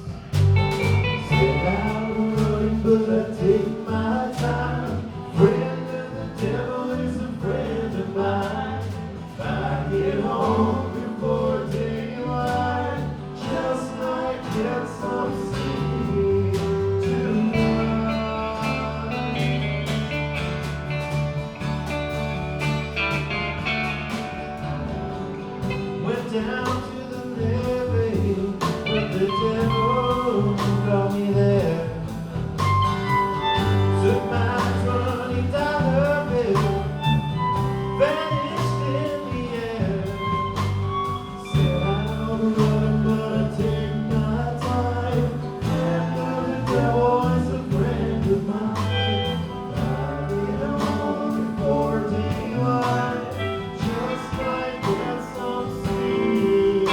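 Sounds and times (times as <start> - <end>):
live band playing: 0.0 - 3.1, 15.8 - 27.1, 28.6 - 56.9
person singing: 0.8 - 20.1, 26.0 - 56.9.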